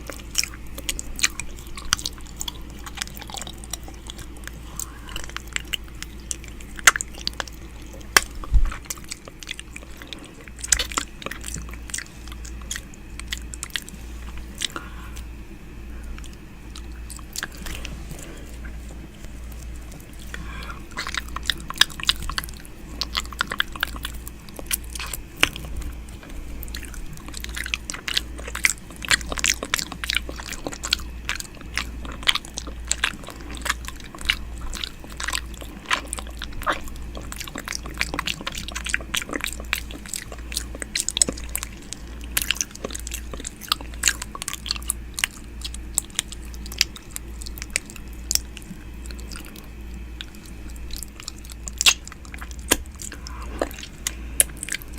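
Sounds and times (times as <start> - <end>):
low hum: 0.0 - 54.9
wet mouth clicks and smacks: 49.4 - 54.9.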